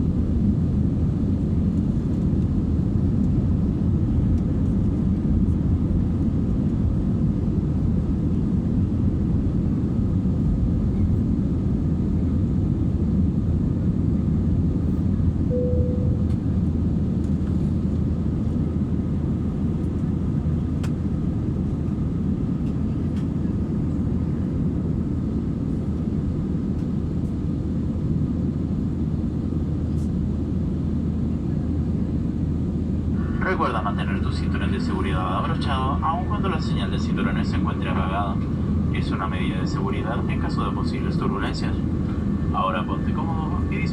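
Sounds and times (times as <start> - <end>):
jet engines and airflow roar: 0.0 - 43.9
single cabin tone: 15.5 - 17.0.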